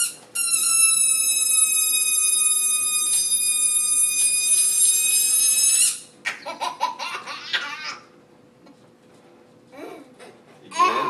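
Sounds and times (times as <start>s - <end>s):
balloon air whistling: 0.0s - 6.1s
child laughing and squealing: 6.4s - 8.1s.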